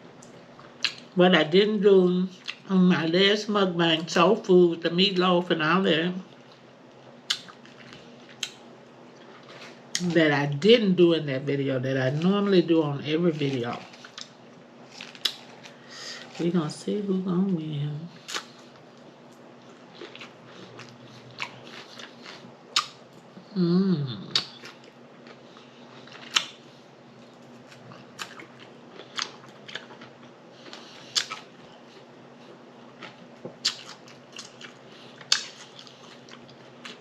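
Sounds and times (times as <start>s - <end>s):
chewing with lip smacks: 7.2s - 10.0s, 13.4s - 16.4s, 18.2s - 23.0s, 24.3s - 37.0s
person humming: 23.4s - 24.4s.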